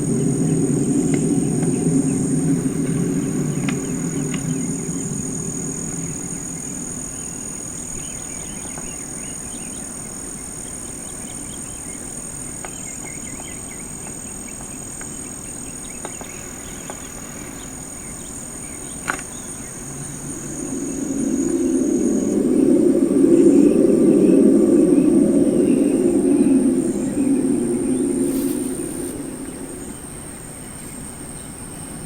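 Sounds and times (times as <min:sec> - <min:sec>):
low rumble: 0:00.0 - 0:08.3, 0:19.8 - 0:30.4
steady high-pitched whine: 0:00.0 - 0:32.0
birds chirping: 0:19.3 - 0:30.4.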